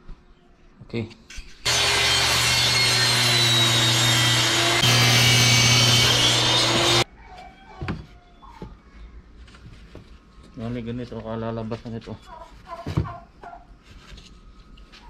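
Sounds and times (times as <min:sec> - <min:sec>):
circular saw cutting plywood: 0:01.7 - 0:07.0.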